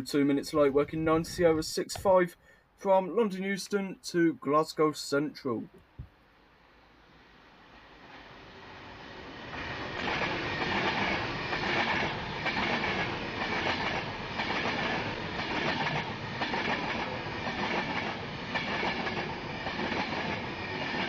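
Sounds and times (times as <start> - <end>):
train passing at speed: 6.6 - 21.0.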